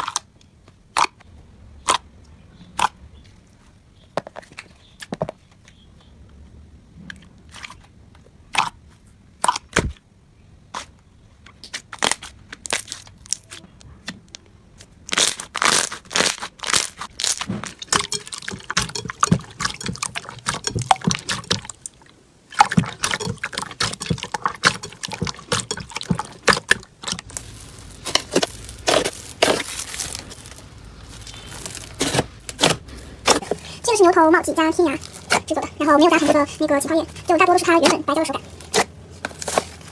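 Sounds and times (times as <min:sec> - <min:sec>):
slime popping and crackling: 0:15.0 - 0:33.6.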